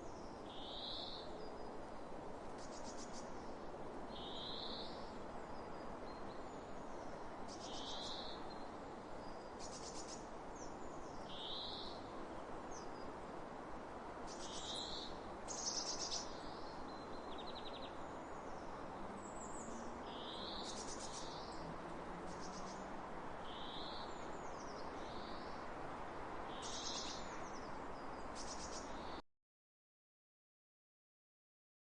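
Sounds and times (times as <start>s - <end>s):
steady background hiss: 0.0s - 29.2s
birds chirping: 14.3s - 21.6s, 22.3s - 22.9s, 26.5s - 29.2s.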